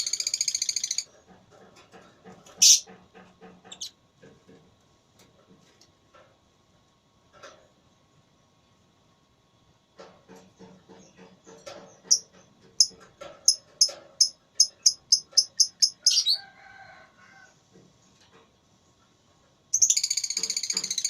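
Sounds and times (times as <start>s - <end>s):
lovebirds chirping: 14.6s - 16.4s.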